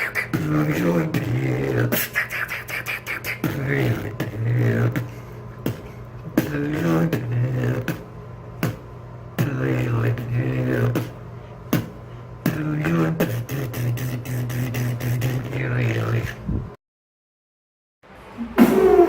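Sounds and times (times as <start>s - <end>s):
beatboxing mouth snaps: 0.0s - 16.4s
hummed vocal bass line: 0.3s - 2.1s, 3.4s - 16.8s.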